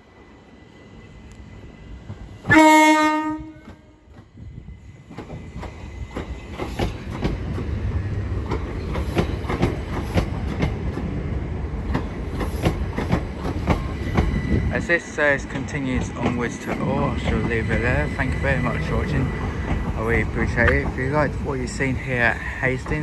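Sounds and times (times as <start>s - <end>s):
train horn blast: 2.5s - 4.2s
train wheels clattering over rails: 3.5s - 23.0s.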